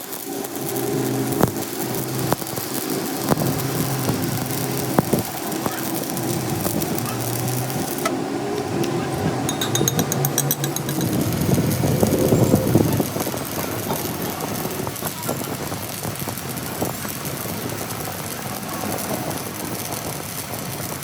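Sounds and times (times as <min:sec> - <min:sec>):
engine running: 0:00.0 - 0:21.0
fast high-pitched ticking: 0:09.5 - 0:18.0.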